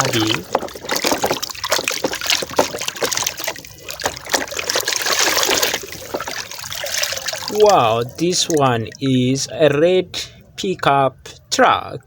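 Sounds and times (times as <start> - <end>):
water trickling and splashing: 0.0 - 9.5.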